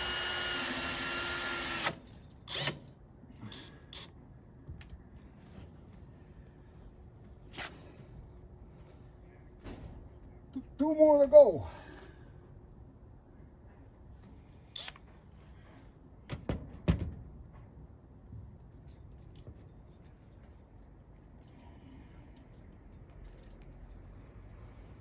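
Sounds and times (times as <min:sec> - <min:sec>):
faint metallic jingling: 0:02.0 - 0:04.0, 0:18.7 - 0:25.0.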